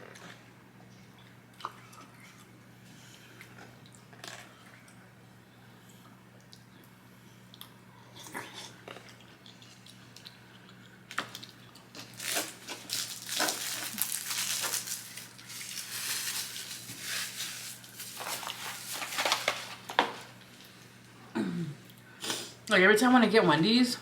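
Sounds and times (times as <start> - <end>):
paper wrapper crinkling: 11.3 - 20.5.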